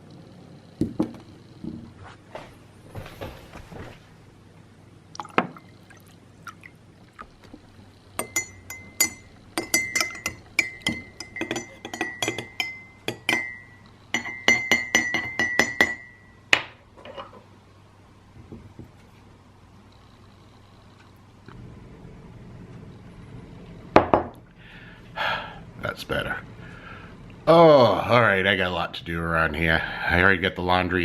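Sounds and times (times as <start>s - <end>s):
spoon clinking in a cup: 8.2s - 16.4s.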